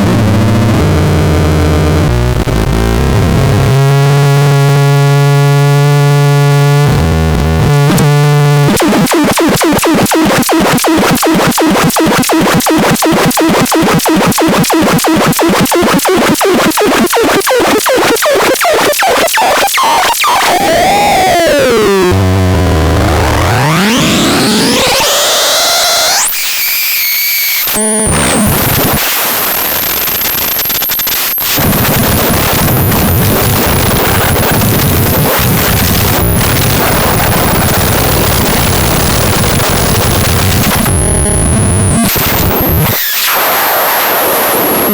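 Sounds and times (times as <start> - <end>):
synthesizer buzzing drone: 19.4 - 44.9.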